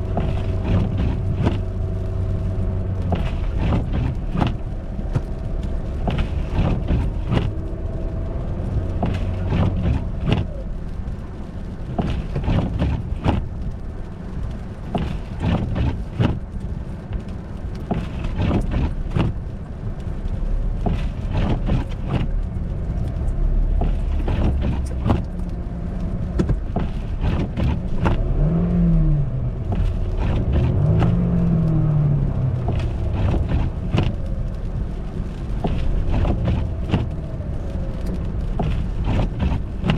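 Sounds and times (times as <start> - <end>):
car rumble on snowy road: 0.0 - 39.9.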